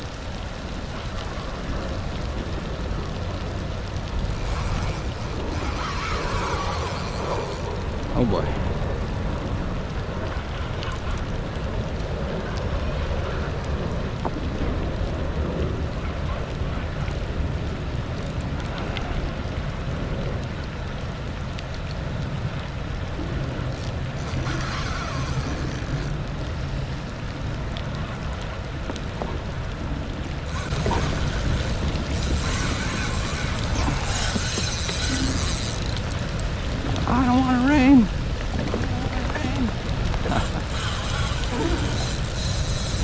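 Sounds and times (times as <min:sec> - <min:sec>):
water splashing around kayak: 0:00.0 - 0:11.2, 0:23.0 - 0:43.0
wind buffeting microphone: 0:00.0 - 0:21.2, 0:22.0 - 0:43.0.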